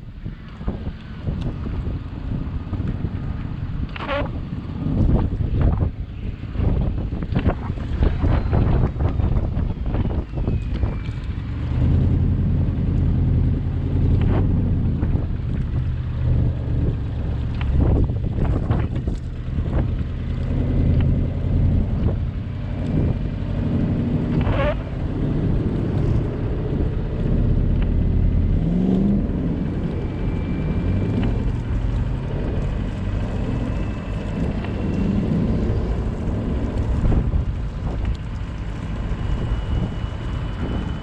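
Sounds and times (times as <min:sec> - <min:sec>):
car engine and tyre rumble: 0:00.0 - 0:41.0
rising squeak: 0:24.2 - 0:26.7.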